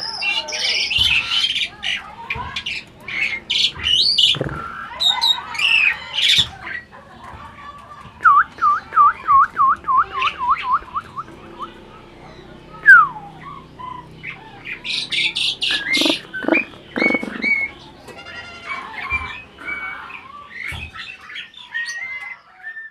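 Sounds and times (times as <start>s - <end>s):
harsh rasping bird calls: 10.0s - 22.9s
bird whistling: 12.7s - 17.8s.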